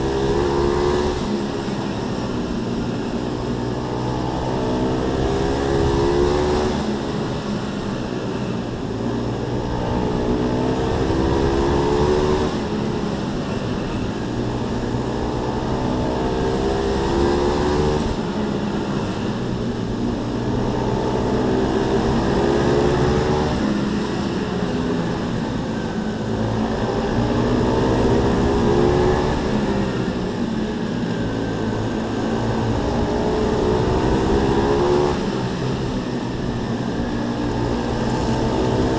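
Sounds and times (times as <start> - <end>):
pit bike engines revving: 8.6 - 38.9.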